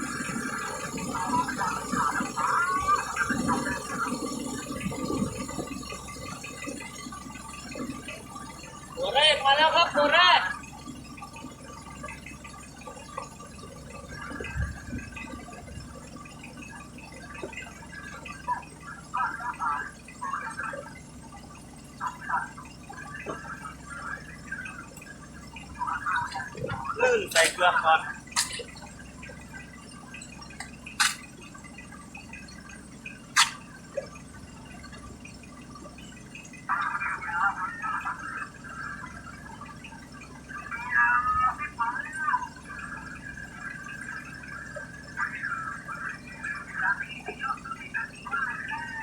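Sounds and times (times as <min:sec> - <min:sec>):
steady low hum: 0:00.0 - 0:49.0
water dripping: 0:00.0 - 0:49.0.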